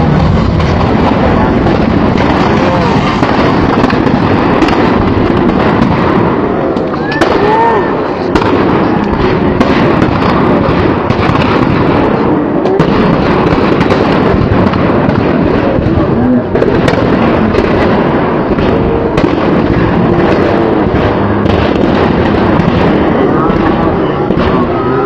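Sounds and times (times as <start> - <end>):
firecrackers crackling: 0.0 - 25.0
faint shouting voices: 6.6 - 9.4.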